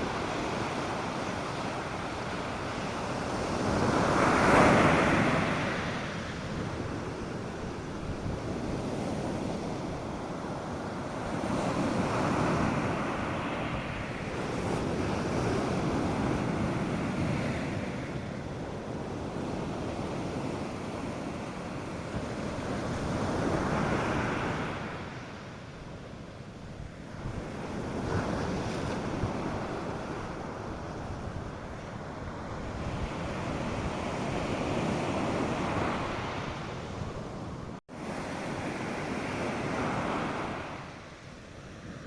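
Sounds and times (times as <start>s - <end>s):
surf breaking on beach: 0.0s - 25.3s
wind on microphone: 0.0s - 42.0s.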